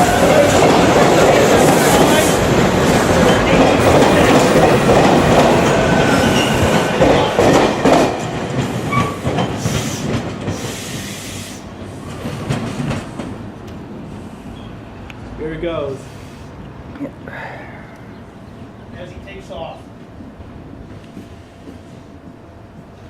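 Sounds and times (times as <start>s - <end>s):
train wheels clacking on rails: 0.0s - 14.7s
train wheel squeals: 5.4s - 7.6s, 8.6s - 11.6s, 14.2s - 14.8s.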